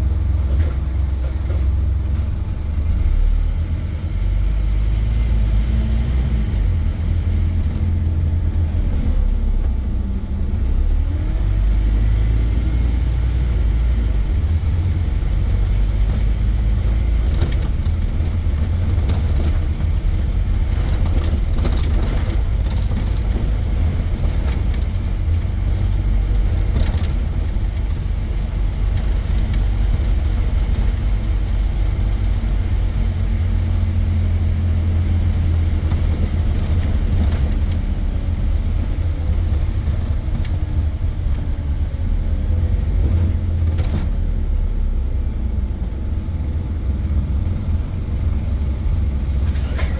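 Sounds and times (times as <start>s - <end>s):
bus diesel engine rumbling: 0.0s - 49.9s.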